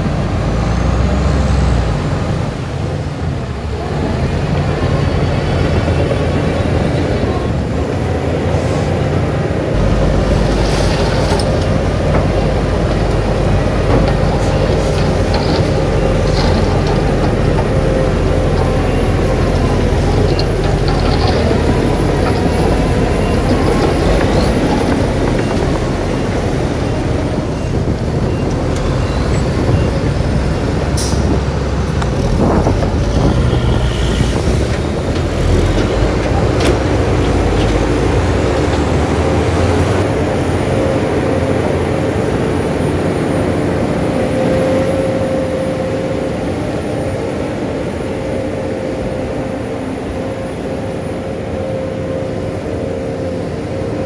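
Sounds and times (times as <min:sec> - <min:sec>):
diesel machinery engine rumble: 0:00.0 - 0:54.0
metallic clanks: 0:09.8 - 0:26.3.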